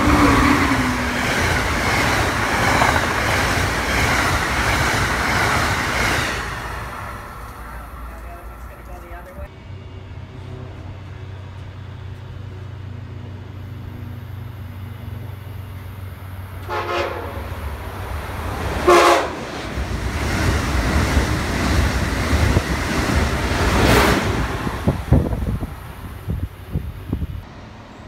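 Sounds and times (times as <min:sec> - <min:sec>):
train passing at speed: 0:00.0 - 0:28.0
train horn blasts: 0:16.6 - 0:17.7, 0:18.8 - 0:19.4.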